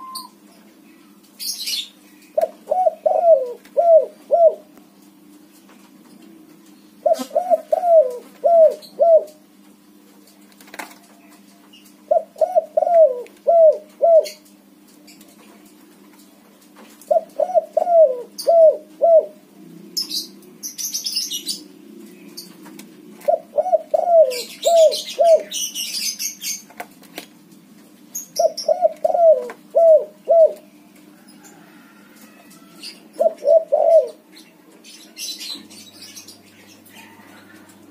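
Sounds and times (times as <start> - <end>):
dove cooing: 0.0 - 0.4, 2.4 - 4.7, 7.0 - 9.4, 12.1 - 14.4, 17.1 - 20.3, 21.1 - 25.7, 28.3 - 34.3.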